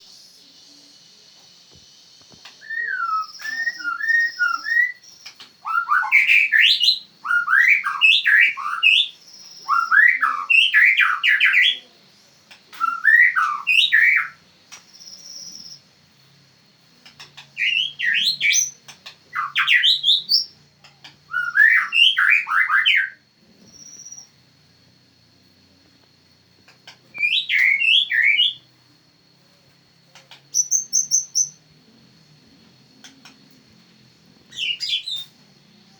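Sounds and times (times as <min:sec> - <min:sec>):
bird singing whistled phrases: 0:02.5 - 0:11.9, 0:12.7 - 0:14.4, 0:17.6 - 0:20.6, 0:21.3 - 0:24.4, 0:27.2 - 0:28.7, 0:30.2 - 0:31.6, 0:34.5 - 0:35.4.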